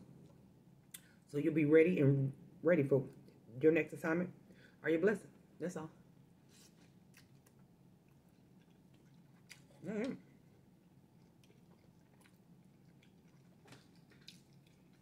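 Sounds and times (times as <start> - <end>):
chewing noodles: 6.6 - 15.0
person humming: 9.8 - 10.2.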